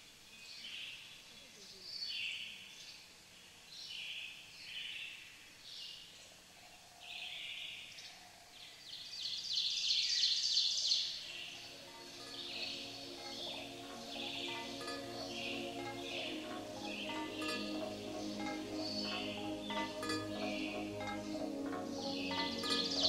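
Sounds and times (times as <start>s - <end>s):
birds chirping: 11.1s - 23.0s.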